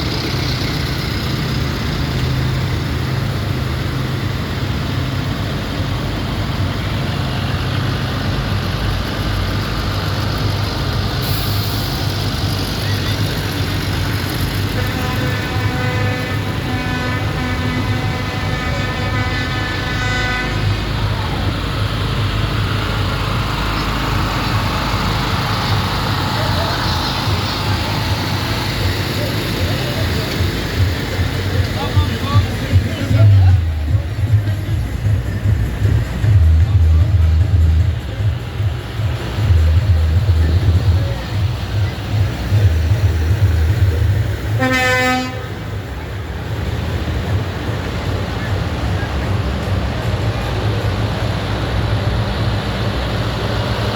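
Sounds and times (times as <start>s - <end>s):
tractor engines running: 0.0s - 53.9s
horn steady note: 14.6s - 21.0s, 44.5s - 45.7s.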